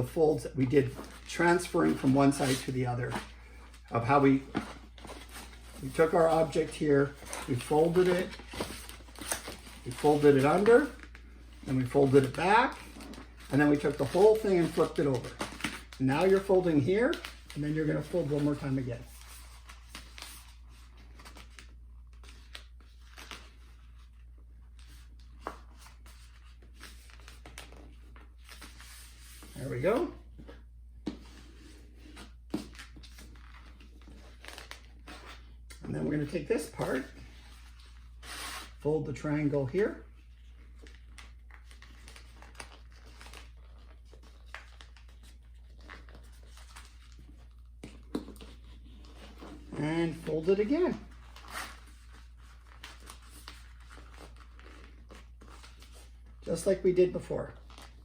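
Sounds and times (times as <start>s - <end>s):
cardstock rustling and crackling: 0.4s - 24.2s.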